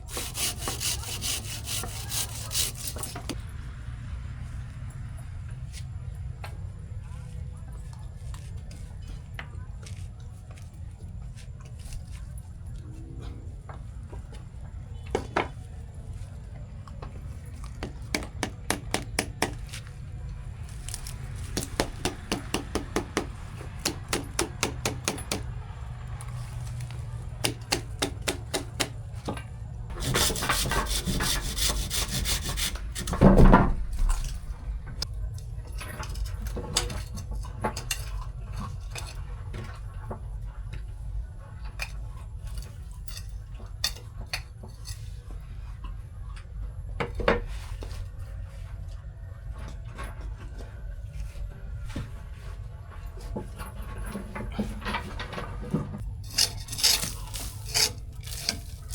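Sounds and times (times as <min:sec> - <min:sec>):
scraping: 0:29.9 - 0:35.1, 0:51.3 - 0:58.9.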